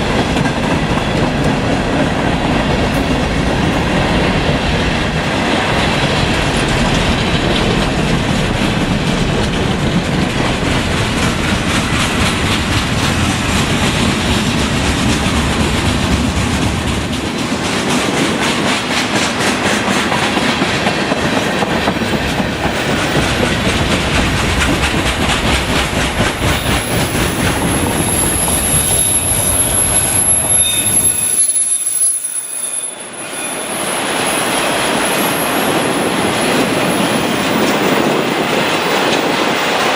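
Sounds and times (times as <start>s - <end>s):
train rolling past: 0.0s - 39.9s
wheels clicking over rail joints: 6.0s - 30.6s
high-pitched wheel squeal: 27.8s - 33.9s.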